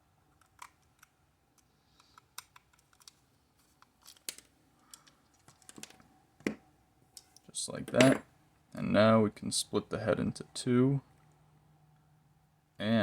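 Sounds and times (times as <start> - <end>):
plastic toy being handled: 0.3 - 6.1.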